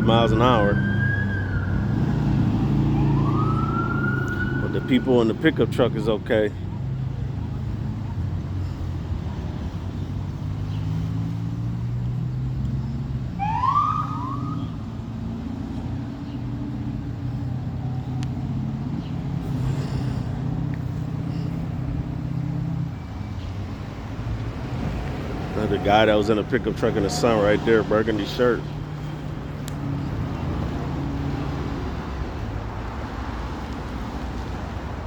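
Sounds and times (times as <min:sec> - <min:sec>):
rising siren whoop: 0:00.0 - 0:05.2, 0:13.4 - 0:14.9
low engine hum: 0:00.0 - 0:35.0.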